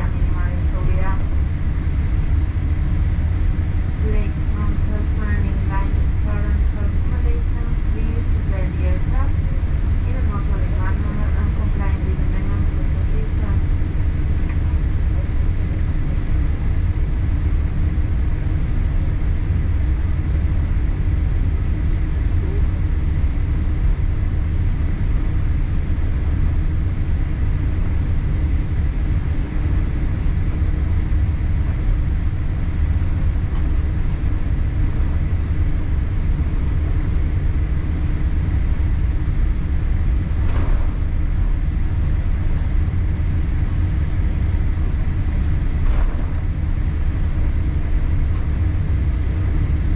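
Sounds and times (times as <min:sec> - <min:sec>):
aircraft cabin rumble: 0:00.0 - 0:49.9.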